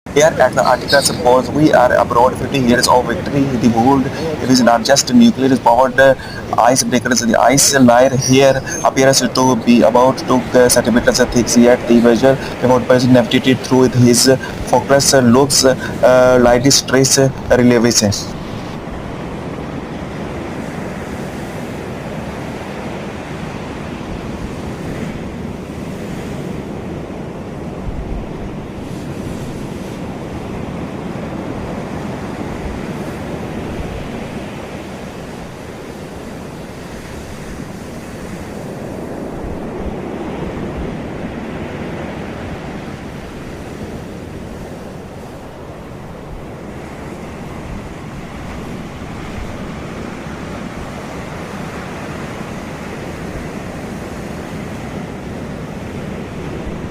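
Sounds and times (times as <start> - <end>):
wind: 0.0 - 56.9
rushing water: 0.1 - 56.9.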